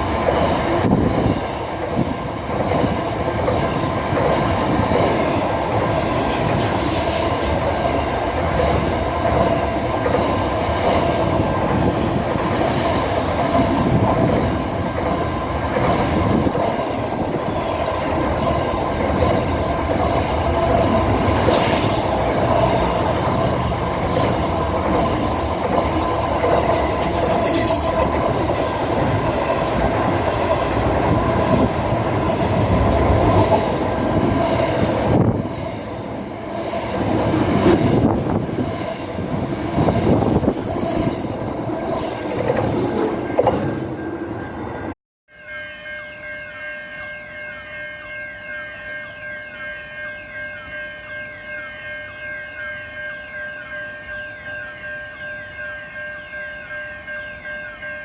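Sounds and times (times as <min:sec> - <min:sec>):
train running on rails: 0:00.0 - 0:58.0
train wheel squeal: 0:05.4 - 0:07.6, 0:10.4 - 0:14.8, 0:23.0 - 0:24.4, 0:25.0 - 0:30.8, 0:39.6 - 0:42.1.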